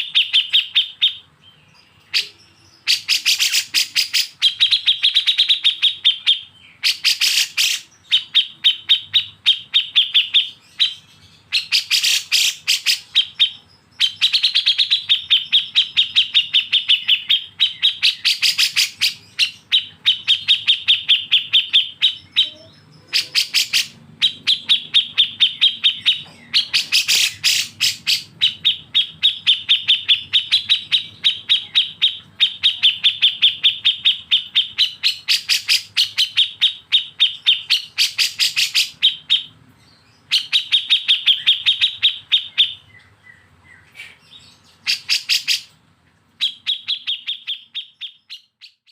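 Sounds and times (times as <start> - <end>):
songbirds rattling chatter: 0.0 - 48.6.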